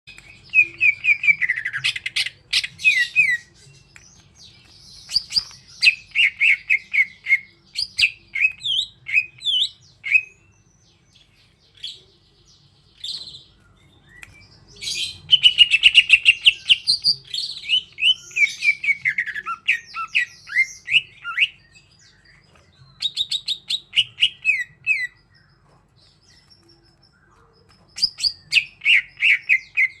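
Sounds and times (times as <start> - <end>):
bird sharp chips: 0.1 - 6.5
bird singing whistled notes: 13.0 - 25.5, 26.2 - 30.0.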